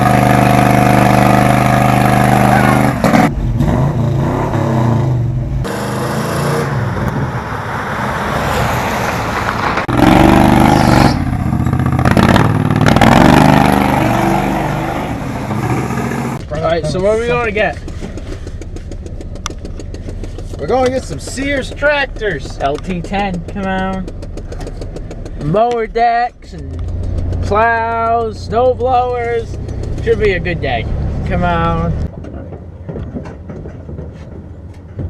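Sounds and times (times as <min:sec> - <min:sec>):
vehicle engine revving: 0:00.0 - 0:25.8, 0:26.4 - 0:32.1.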